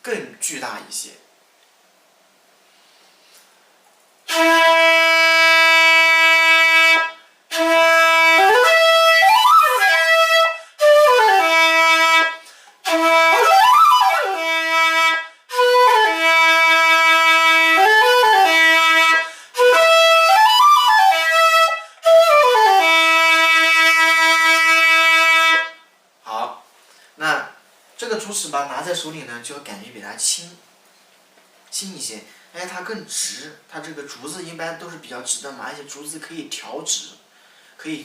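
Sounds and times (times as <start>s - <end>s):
bamboo flute playing: 4.3s - 25.9s
player breathing: 37.3s - 37.8s.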